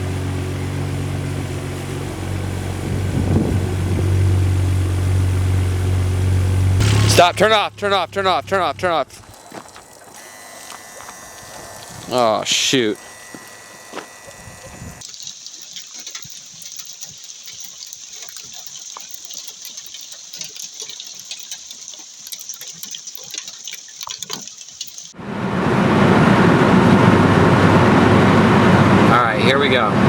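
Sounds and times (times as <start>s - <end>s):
car driving noise: 0.0s - 15.0s, 25.2s - 30.0s.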